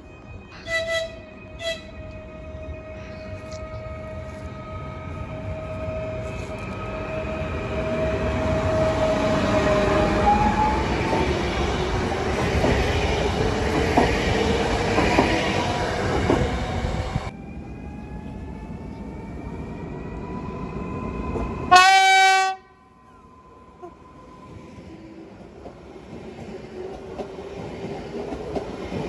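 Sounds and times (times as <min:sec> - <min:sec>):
train horn blast: 0:00.6 - 0:02.1, 0:21.7 - 0:22.8.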